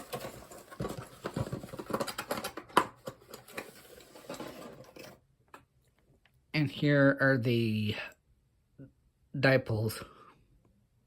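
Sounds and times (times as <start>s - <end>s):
plastic parts rustling and scraping: 0.0s - 5.2s.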